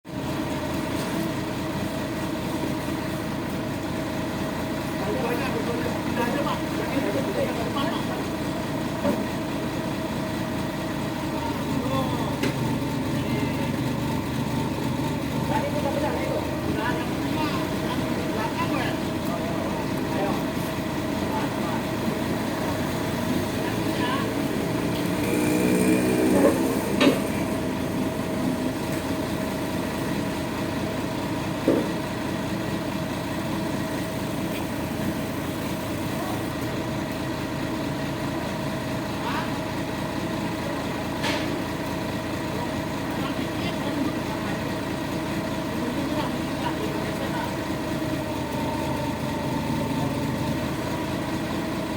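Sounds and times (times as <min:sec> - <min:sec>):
truck engine idling: 0:00.1 - 0:51.9
people's voices: 0:11.3 - 0:29.3, 0:42.4 - 0:51.6.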